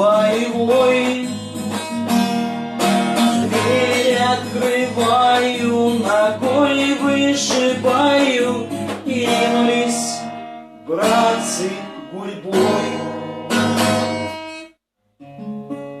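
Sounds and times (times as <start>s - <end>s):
man singing: 0.0s - 1.5s, 3.3s - 13.2s
acoustic guitar strummed chords: 0.0s - 16.0s.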